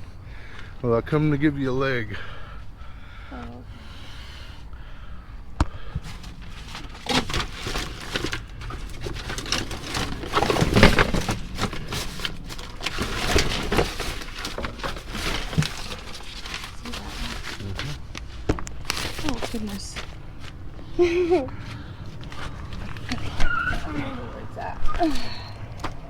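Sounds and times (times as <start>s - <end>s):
trash rustling in a dumpster: 4.8s - 26.0s.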